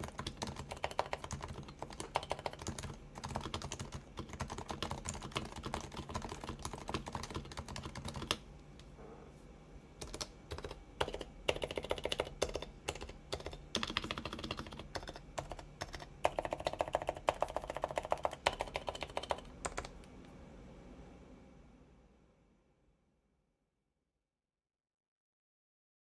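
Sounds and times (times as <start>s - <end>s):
keyboard typing: 0.0s - 8.4s, 10.0s - 20.0s.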